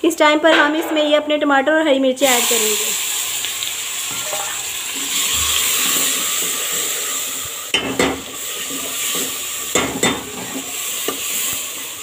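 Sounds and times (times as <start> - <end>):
vegetables sizzling in hot oil: 2.0 - 12.0
spoon knocking against pot: 9.2 - 10.3.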